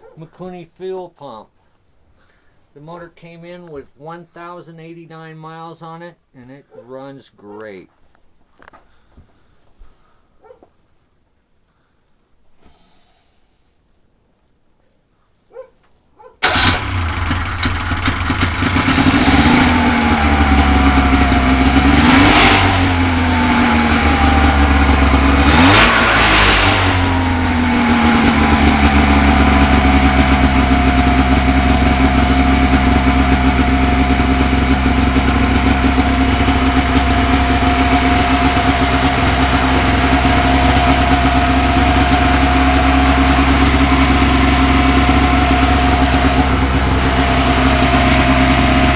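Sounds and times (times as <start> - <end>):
snowmobile engine revving and idling: 16.4 - 48.9.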